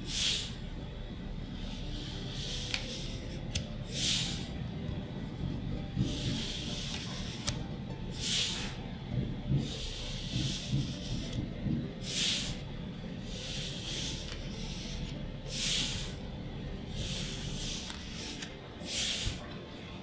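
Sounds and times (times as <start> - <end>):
cards sliding papery swish: 0.1 - 0.6, 1.5 - 4.6, 6.0 - 8.8, 9.6 - 16.3, 16.9 - 19.6.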